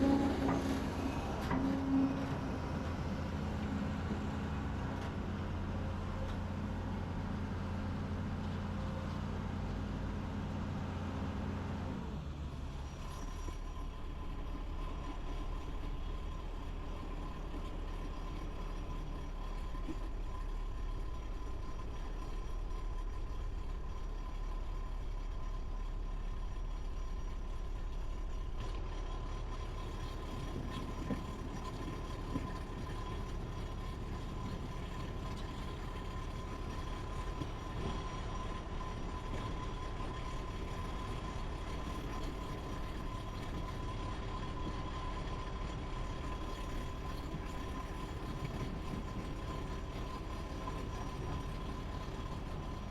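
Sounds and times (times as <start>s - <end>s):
engine rumble: 0.0s - 52.9s.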